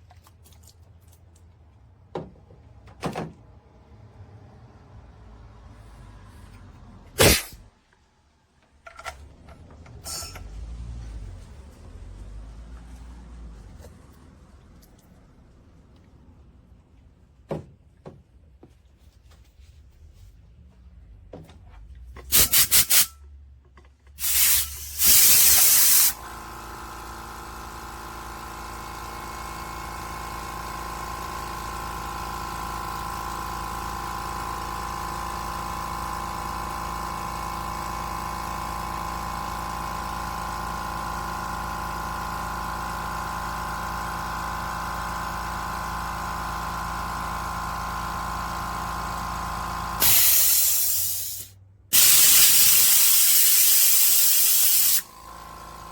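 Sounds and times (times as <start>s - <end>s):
air compressor humming: 7.1s - 7.7s, 9.0s - 10.6s, 22.3s - 23.2s, 24.2s - 55.9s
compressed air hissing: 7.2s - 7.6s, 22.3s - 23.1s, 24.2s - 26.2s, 50.0s - 55.1s.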